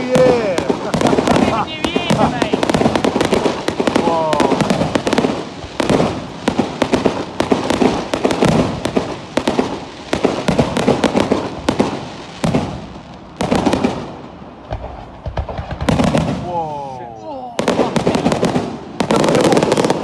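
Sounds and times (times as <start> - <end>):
fireworks banging and crackling: 0.0 - 20.0.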